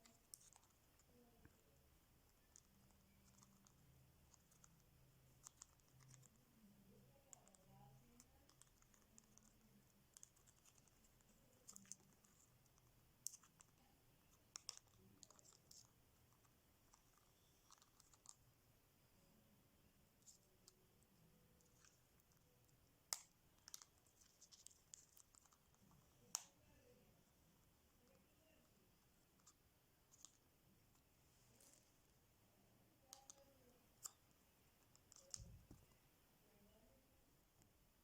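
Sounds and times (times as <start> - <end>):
faint low hum: 0.0 - 38.0.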